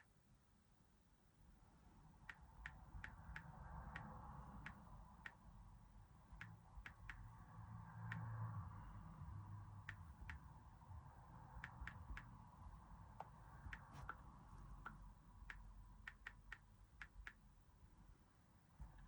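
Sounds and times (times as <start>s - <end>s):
light clicks and ticks: 2.3s - 5.4s, 8.0s - 8.3s, 9.8s - 10.5s, 11.6s - 12.4s.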